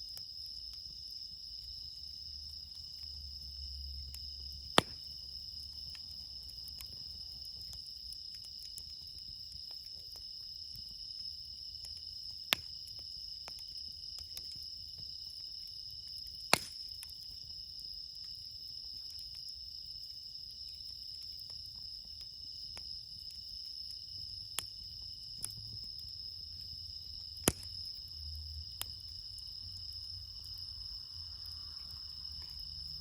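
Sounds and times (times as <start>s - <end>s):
campfire crackling: 0.0s - 33.0s
crickets chirping: 0.0s - 33.0s
burning wood popping: 4.2s - 15.3s, 15.9s - 17.6s, 26.8s - 30.7s.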